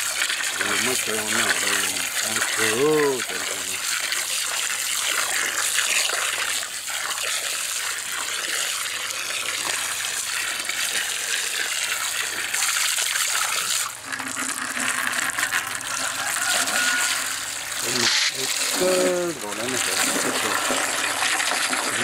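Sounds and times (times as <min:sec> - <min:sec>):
flowing water: 0:00.0 - 0:22.0.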